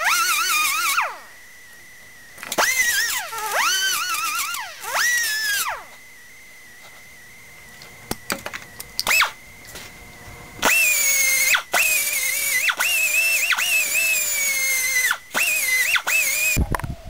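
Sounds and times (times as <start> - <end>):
grinder cutting steel: 0.0 - 1.4, 2.4 - 6.1, 10.6 - 16.7.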